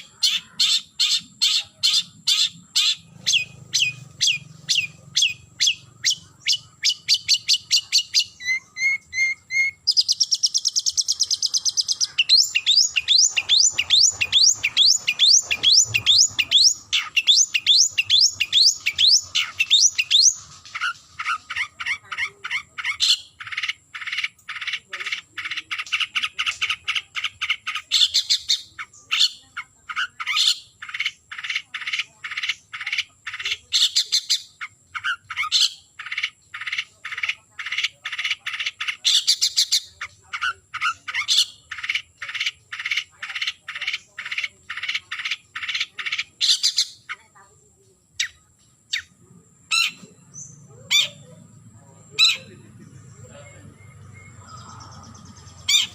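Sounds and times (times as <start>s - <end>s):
bird buzzy trill: 0.0s - 22.2s.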